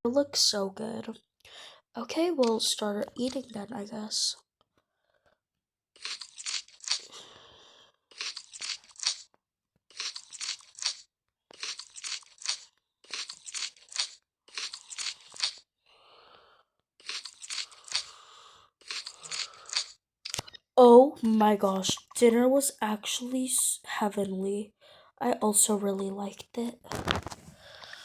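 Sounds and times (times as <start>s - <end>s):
crunchy food being chewed: 6.0s - 7.2s, 8.1s - 9.3s, 9.9s - 15.6s, 17.0s - 18.2s, 18.8s - 20.4s.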